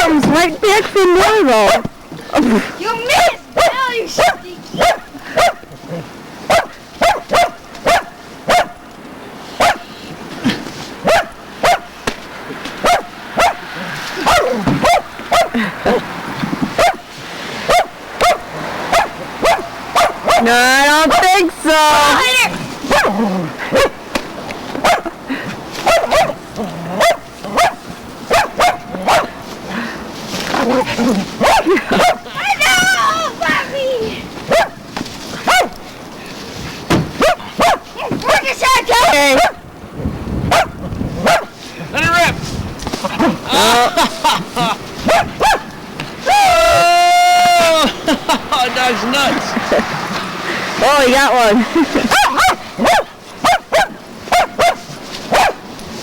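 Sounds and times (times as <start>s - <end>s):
dog barking: 1.2s - 1.9s, 3.2s - 8.8s, 9.6s - 10.0s, 11.0s - 11.9s, 12.8s - 16.0s, 16.8s - 21.3s, 22.9s - 24.0s, 24.8s - 25.1s, 25.8s - 29.4s, 30.6s - 32.4s, 34.5s - 34.8s, 35.4s - 35.8s, 37.2s - 39.6s, 40.5s - 41.6s, 45.0s - 45.7s, 52.0s - 55.6s.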